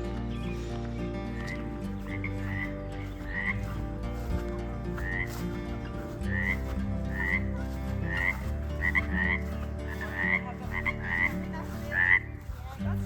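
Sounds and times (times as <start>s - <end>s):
frogs chirping: 1.3s - 4.0s, 5.0s - 5.4s, 6.3s - 12.6s
hum of frog calls: 1.3s - 12.5s.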